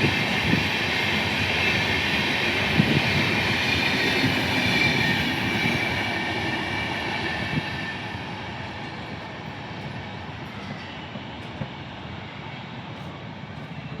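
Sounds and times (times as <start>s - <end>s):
train wheels rumbling and clattering: 0.0s - 14.0s
rail joint clicks: 8.6s - 11.8s.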